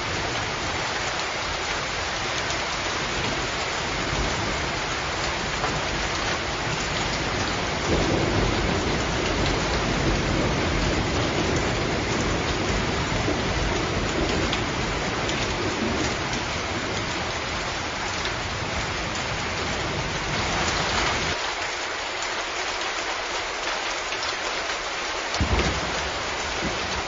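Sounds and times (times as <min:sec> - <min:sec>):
rain falling: 0:00.0 - 0:27.0
thunder rumbling: 0:03.9 - 0:17.7, 0:25.4 - 0:27.0.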